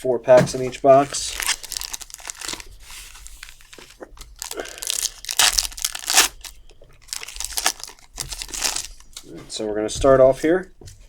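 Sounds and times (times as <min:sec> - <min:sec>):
plastic wrapper crinkling and tearing: 0:00.8 - 0:09.4.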